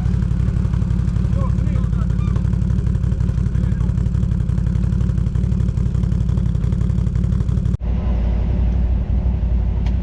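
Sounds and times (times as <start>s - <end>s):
quad bike engine pulsing: 0.0s - 7.8s
another engine running: 0.0s - 10.0s.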